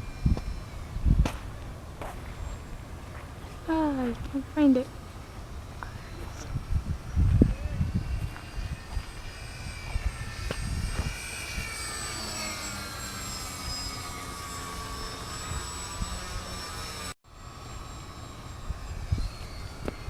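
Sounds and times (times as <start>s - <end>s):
wind on microphone: 0.0s - 2.9s, 5.4s - 13.8s, 18.5s - 20.0s
model plane motors whining: 0.0s - 3.0s, 3.6s - 20.0s.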